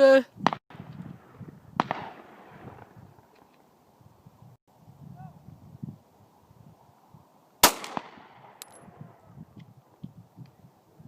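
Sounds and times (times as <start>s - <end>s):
pistol shot with echo: 1.8s - 2.9s, 7.6s - 8.7s.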